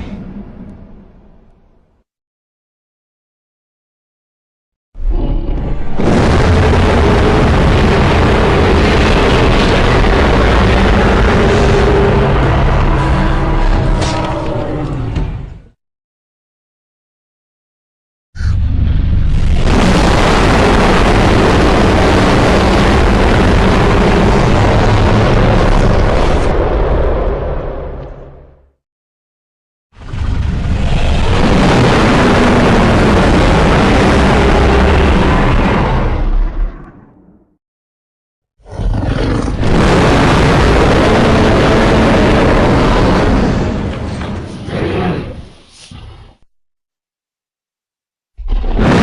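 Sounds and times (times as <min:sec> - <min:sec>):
monster roar: 0:05.1 - 0:15.2, 0:38.6 - 0:45.4.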